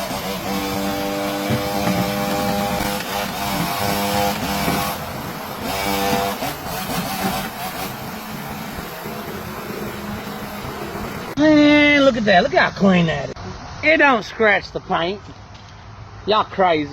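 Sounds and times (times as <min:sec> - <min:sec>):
truck engine running: 0:00.0 - 0:11.4
steady hiss: 0:00.0 - 0:14.6.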